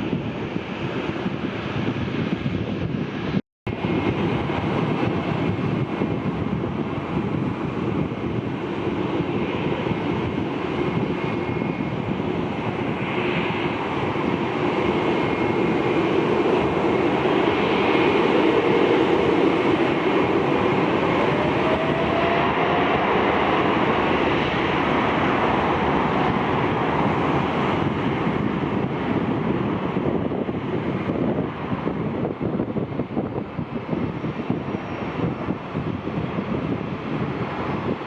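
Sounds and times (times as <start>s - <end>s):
jet airliner engine rush: 0.0s - 38.0s
faint rising whine: 19.7s - 27.6s.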